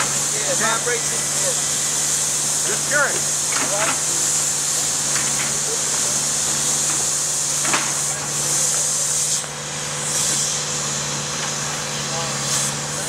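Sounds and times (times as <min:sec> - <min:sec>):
loud high hiss: 0:00.0 - 0:13.0.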